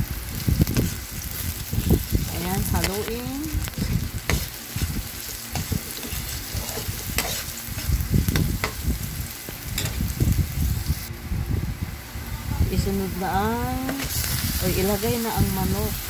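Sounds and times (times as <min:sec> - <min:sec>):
food sizzling in hot oil: 0:00.0 - 0:11.1, 0:12.7 - 0:16.0
spatula scraping a pan: 0:02.2 - 0:08.8.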